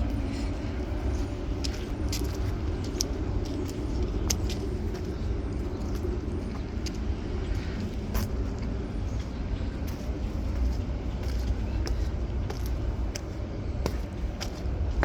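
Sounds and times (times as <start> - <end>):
road traffic rumble: 0.0 - 15.0
raindrops ticking near microphone: 0.3 - 9.3.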